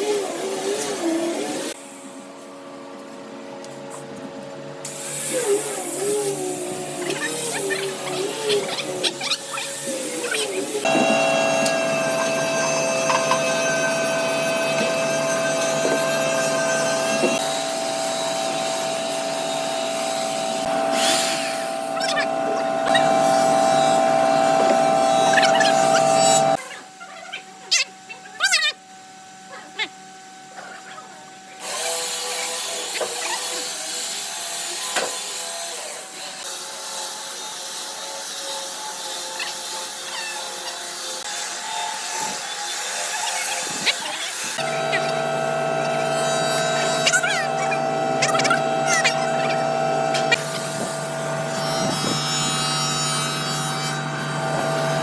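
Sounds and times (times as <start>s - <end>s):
power tool whining on wood: 4.9s - 26.6s, 38.7s - 55.0s.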